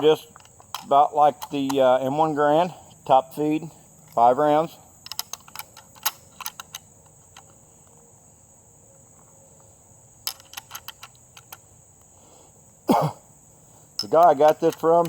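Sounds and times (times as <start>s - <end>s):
crickets trilling: 0.0s - 15.0s
rifle bolt clicking: 5.0s - 7.6s.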